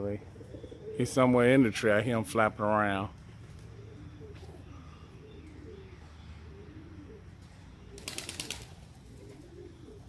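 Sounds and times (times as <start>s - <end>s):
pigeons cooing: 0.0s - 2.1s, 3.2s - 10.0s
wings flapping: 8.0s - 9.5s.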